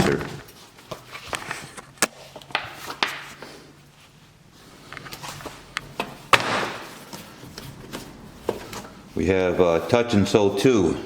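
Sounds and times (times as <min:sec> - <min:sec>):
paper rustling and tapping: 0:00.9 - 0:03.4.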